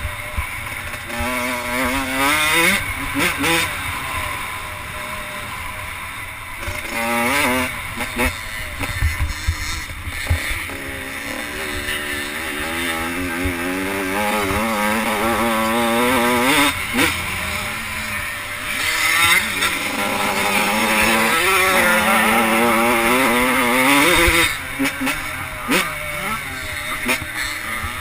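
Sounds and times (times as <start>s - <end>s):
motocross bikes revving: 0.0s - 28.0s.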